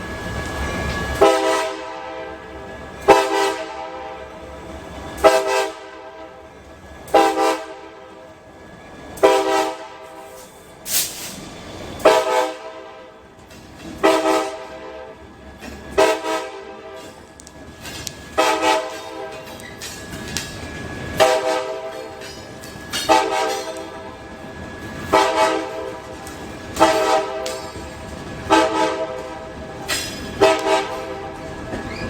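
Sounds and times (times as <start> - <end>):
locomotive air horn blasts: 1.2 - 4.3, 5.2 - 6.5, 7.1 - 8.2, 9.2 - 10.4, 12.0 - 13.2, 14.0 - 15.2, 15.9 - 17.2, 18.4 - 19.4, 21.2 - 22.2, 23.0 - 24.2, 25.0 - 27.8, 28.4 - 29.6, 30.4 - 31.6.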